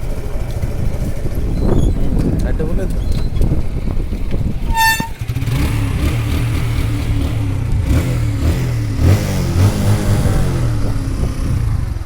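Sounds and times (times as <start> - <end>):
vehicle engine humming: 0.0 - 12.0
vehicle horn beep: 4.7 - 5.2.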